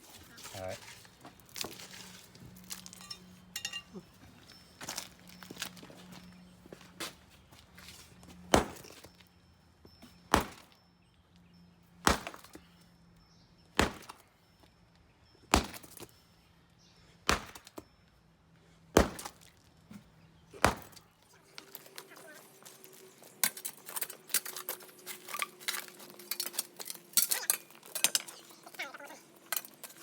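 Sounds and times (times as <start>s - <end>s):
sledgehammer striking concrete: 8.5s - 9.0s, 10.3s - 10.7s, 12.0s - 12.6s, 13.8s - 14.2s, 15.5s - 16.0s, 17.3s - 17.8s, 19.0s - 19.4s, 20.6s - 21.0s.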